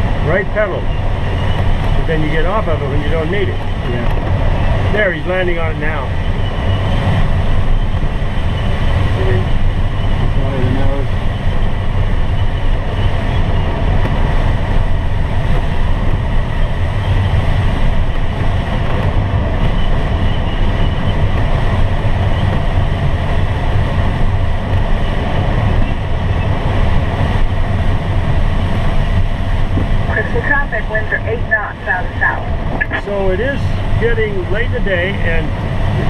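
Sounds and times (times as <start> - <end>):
cockpit airflow rushing: 0.0 - 36.0.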